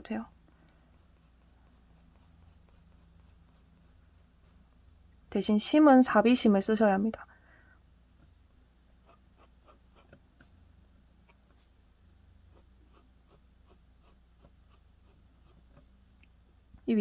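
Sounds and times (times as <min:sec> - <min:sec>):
pencil strokes on paper: 0:00.0 - 0:04.7, 0:09.0 - 0:10.6, 0:12.5 - 0:15.6.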